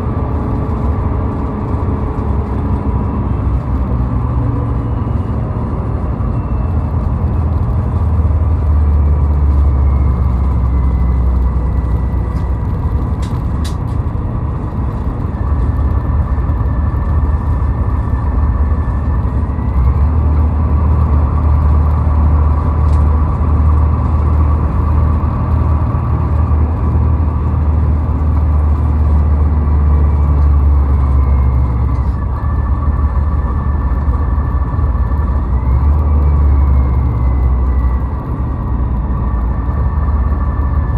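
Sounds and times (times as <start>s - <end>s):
road and engine rumble: 0.0s - 40.9s.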